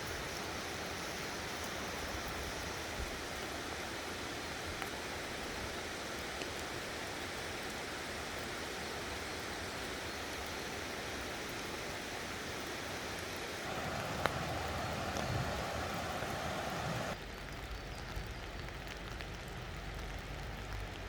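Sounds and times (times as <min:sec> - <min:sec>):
water hissing: 0:13.5 - 0:17.2.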